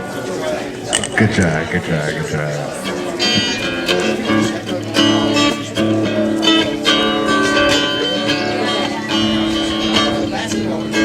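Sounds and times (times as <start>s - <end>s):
guitar strumming chords: 0.4s - 11.0s.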